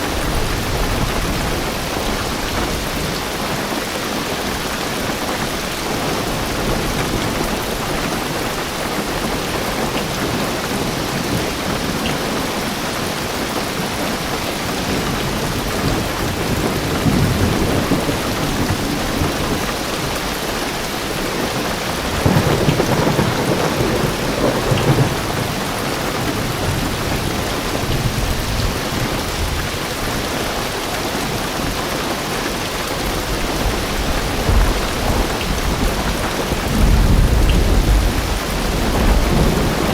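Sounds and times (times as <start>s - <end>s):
heavy rain drumming on car roof: 0.0s - 39.9s
deep thunder rumbling: 14.8s - 29.9s, 33.1s - 39.9s.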